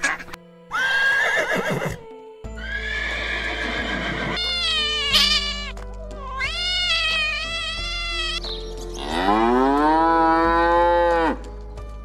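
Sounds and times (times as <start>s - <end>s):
background music: 0.0s - 12.0s
horse whinnying: 0.7s - 2.0s, 2.6s - 5.8s.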